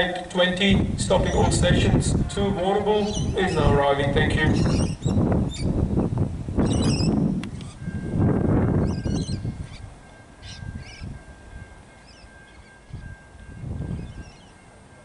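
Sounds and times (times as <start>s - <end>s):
wind buffeting microphone: 0.0s - 15.0s
small birds chirping: 4.5s - 5.8s, 6.6s - 7.8s.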